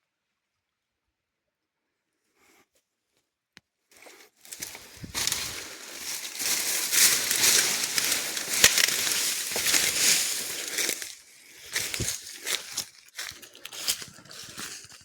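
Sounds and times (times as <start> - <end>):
leaves and branches rustling: 4.0 - 15.0
branches snapping: 4.4 - 14.6.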